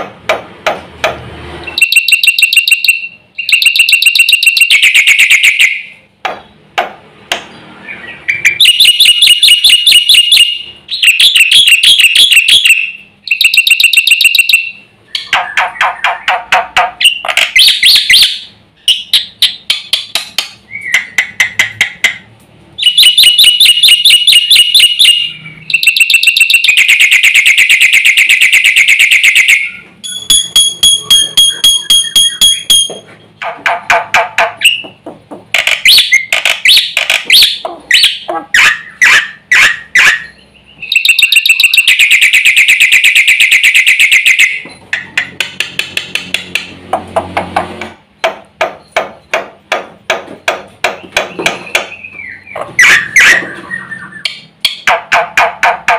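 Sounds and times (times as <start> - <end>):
myna bird singing: 7.4 - 21.8, 22.8 - 26.5, 29.4 - 33.0, 35.7 - 42.7, 50.8 - 54.9.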